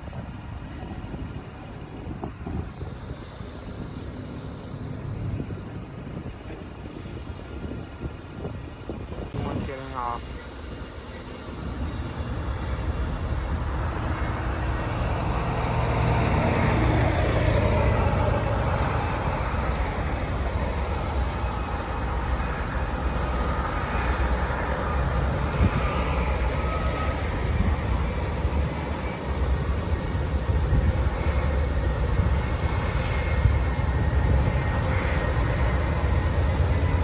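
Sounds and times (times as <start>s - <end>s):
heavy vehicle rumbling past: 11.4s - 37.0s.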